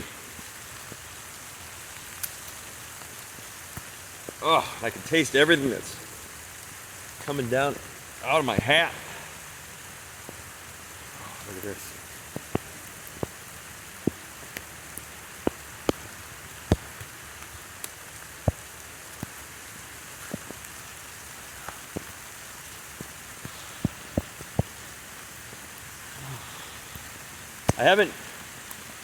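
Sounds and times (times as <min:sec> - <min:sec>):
steady rain hissing: 0:00.0 - 0:29.0.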